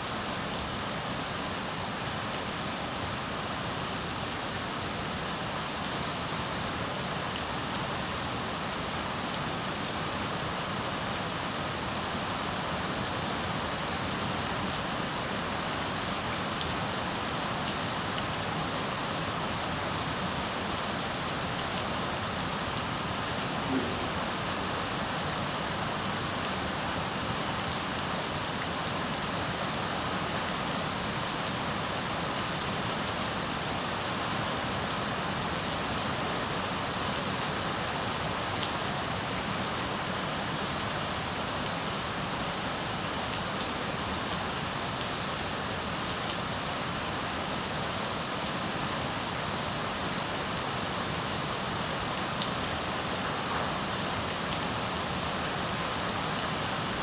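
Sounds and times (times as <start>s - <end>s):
heavy rain falling: 4.3s - 57.0s.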